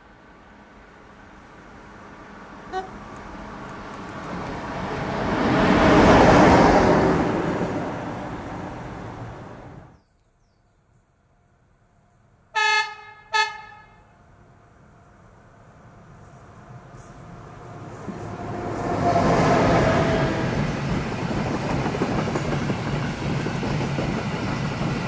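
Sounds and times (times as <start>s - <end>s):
train wheels rumbling on rails: 1.0s - 9.9s, 15.9s - 25.0s
train horn blasts: 2.7s - 3.1s, 12.5s - 14.2s, 18.6s - 20.7s.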